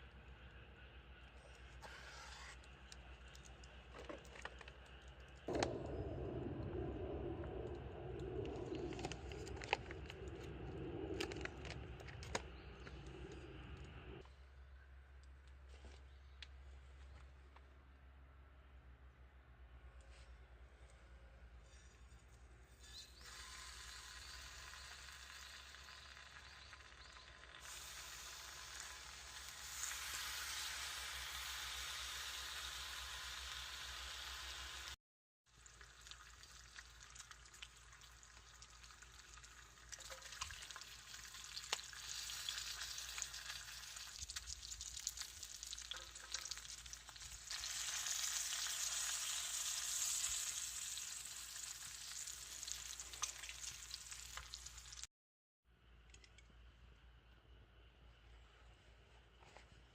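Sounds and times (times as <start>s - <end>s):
crackling clicks: 2.6s - 14.0s
food sizzling in a pan: 23.2s - 35.0s, 39.6s - 55.1s.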